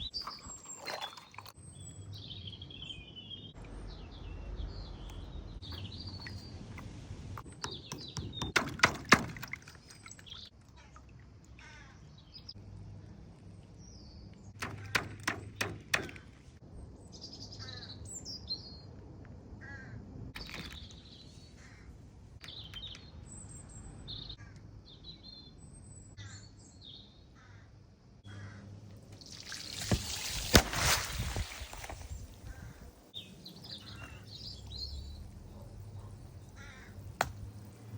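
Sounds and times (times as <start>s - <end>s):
birds chirping and tweeting: 0.0s - 37.9s
crows cawing: 11.6s - 12.0s, 19.6s - 20.0s, 27.4s - 28.7s, 36.6s - 37.1s.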